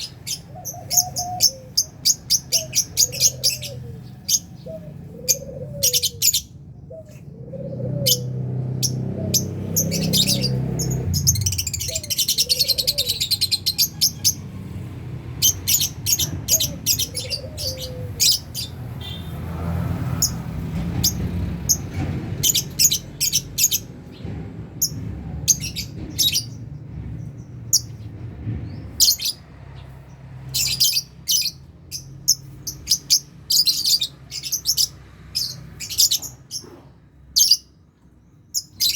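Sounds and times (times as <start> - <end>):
lovebirds chirping: 0.0 - 14.7, 15.3 - 19.4, 28.7 - 36.8, 37.4 - 38.9.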